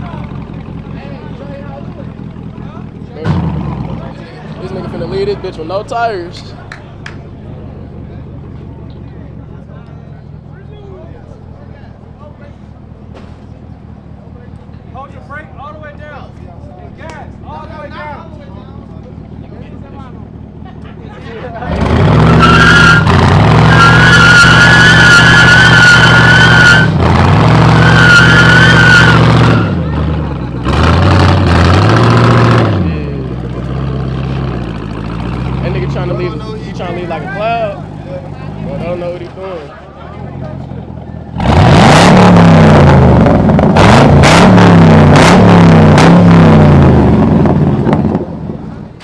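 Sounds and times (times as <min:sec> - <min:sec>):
car engine at high revs: 0:03.2 - 0:06.4, 0:21.6 - 0:39.4, 0:41.2 - 0:49.0
tyres squealing: 0:21.6 - 0:32.6.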